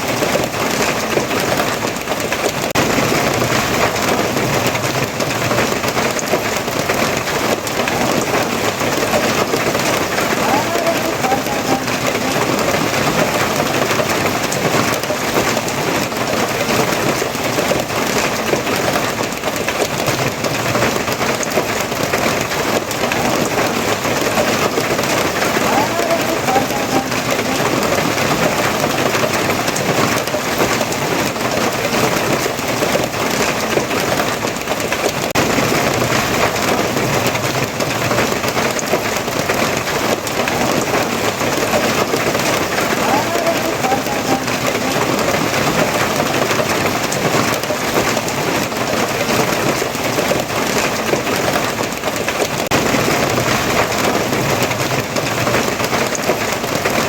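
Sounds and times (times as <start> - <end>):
heavy rain pattering: 0.0 - 57.0.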